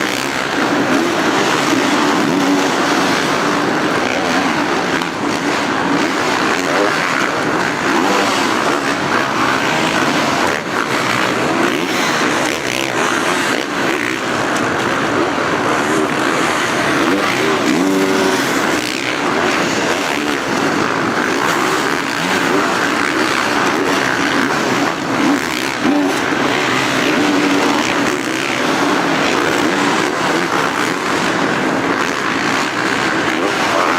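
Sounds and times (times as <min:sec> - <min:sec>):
dirt bike engines revving: 0:00.0 - 0:33.9.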